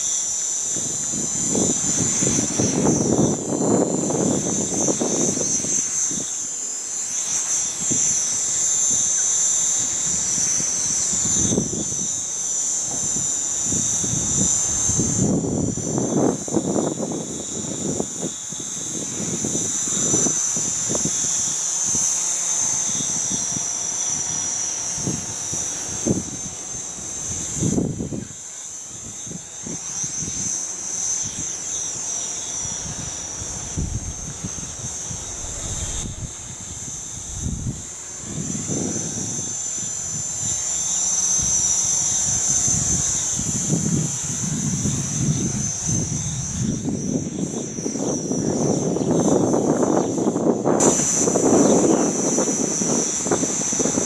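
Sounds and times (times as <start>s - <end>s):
drone motors whining: 0.0s - 54.0s
wind buffeting microphone: 0.8s - 6.3s, 7.7s - 21.6s, 23.0s - 30.5s, 31.2s - 54.0s.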